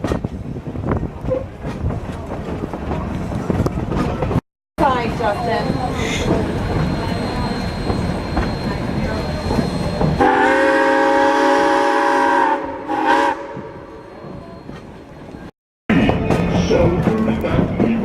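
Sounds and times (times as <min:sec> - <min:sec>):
rumble of moving train: 0:00.0 - 0:18.0
steam locomotive whistle: 0:09.5 - 0:14.3.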